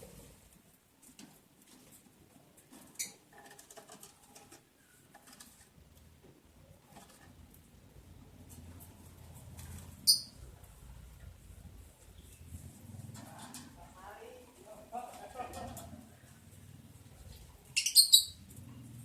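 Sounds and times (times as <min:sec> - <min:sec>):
faint scratching and pattering: 0:00.0 - 0:17.7
bird high chirps: 0:10.0 - 0:10.4, 0:17.7 - 0:18.4.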